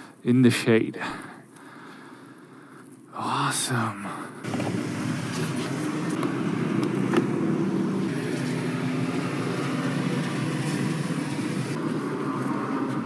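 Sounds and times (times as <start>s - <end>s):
road traffic drone: 4.1s - 13.0s
faint engine hum: 4.4s - 13.0s.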